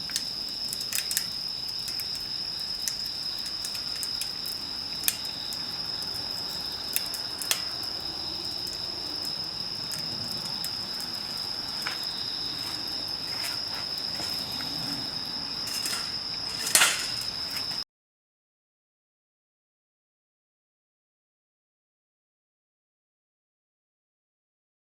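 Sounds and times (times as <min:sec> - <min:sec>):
campfire crackling: 0:00.0 - 0:17.8
crickets trilling: 0:00.0 - 0:17.8
rustling burst: 0:10.3 - 0:17.8.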